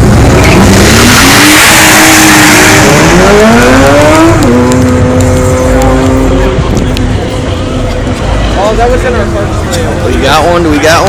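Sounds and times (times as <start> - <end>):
car engine revving hard: 0.0 - 6.7.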